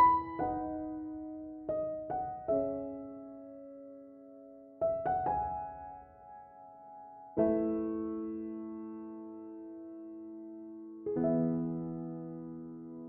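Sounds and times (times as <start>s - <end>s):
slow gentle piano music: 0.0s - 13.0s.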